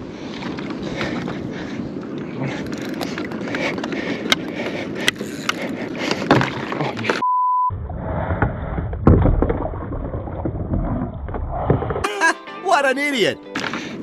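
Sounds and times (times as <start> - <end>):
rough outdoor noise: 0.0 - 7.2
censor bleep: 7.2 - 7.7.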